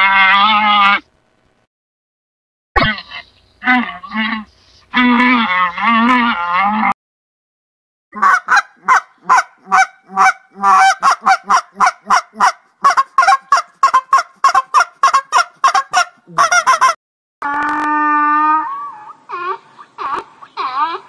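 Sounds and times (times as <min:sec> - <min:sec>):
goose honking: 0:08.2 - 0:17.0
llama calling: 0:08.2 - 0:21.0.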